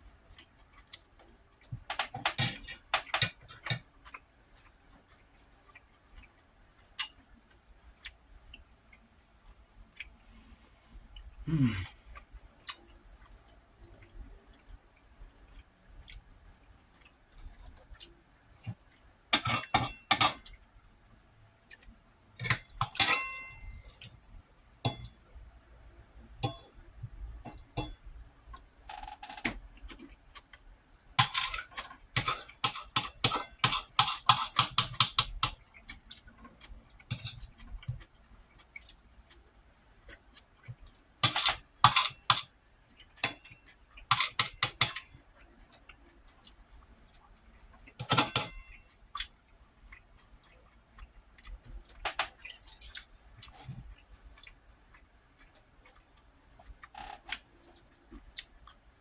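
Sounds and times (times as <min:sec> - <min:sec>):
metal cutlery clinking on a dish: 0:01.9 - 0:03.8, 0:19.3 - 0:20.6, 0:22.4 - 0:24.2, 0:24.9 - 0:25.2, 0:26.4 - 0:26.8, 0:27.5 - 0:28.0, 0:31.2 - 0:35.6, 0:37.0 - 0:38.0, 0:41.2 - 0:42.5, 0:43.2 - 0:45.2, 0:48.0 - 0:48.8, 0:52.0 - 0:53.1.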